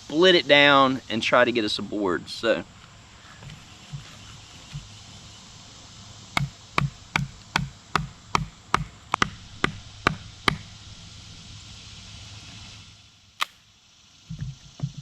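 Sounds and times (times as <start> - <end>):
blade chopping branch: 13.4 - 13.6.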